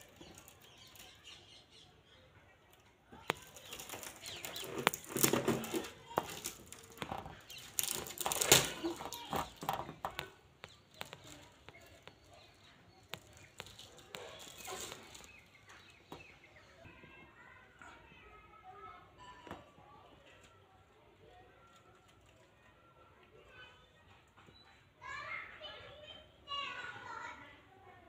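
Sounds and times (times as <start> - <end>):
rubbery balloon squeaks: 3.3 - 10.3.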